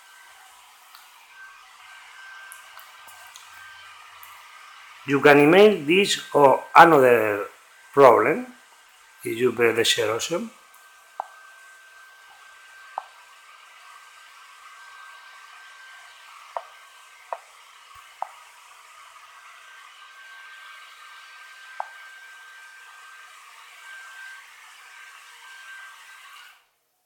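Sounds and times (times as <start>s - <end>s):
faint high whine: 0.0s - 13.4s
background hiss: 5.0s - 11.4s.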